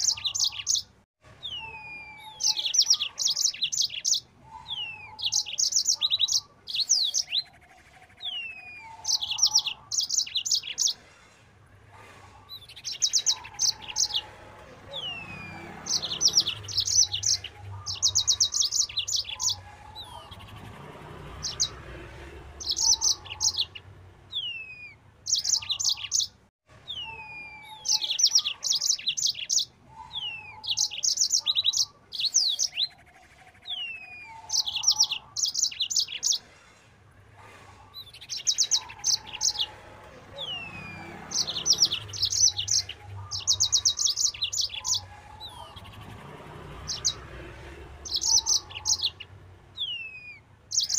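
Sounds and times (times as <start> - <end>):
canary singing trills and whistles: 0.0 - 11.3, 12.4 - 36.8, 37.5 - 50.9.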